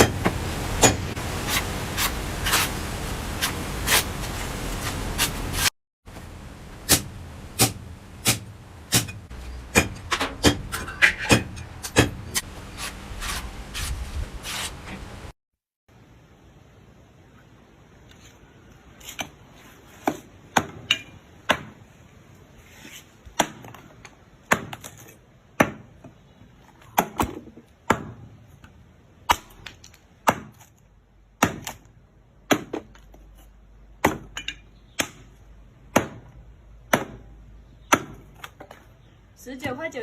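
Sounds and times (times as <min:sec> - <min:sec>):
knife chopping on metal: 0:06.9 - 0:12.5.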